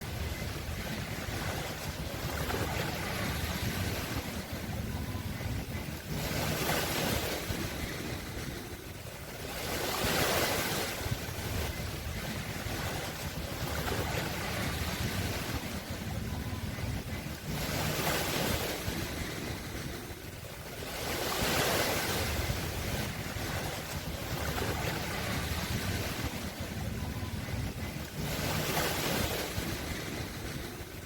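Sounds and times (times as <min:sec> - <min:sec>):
sea waves breaking on shore: 0:00.0 - 0:31.0.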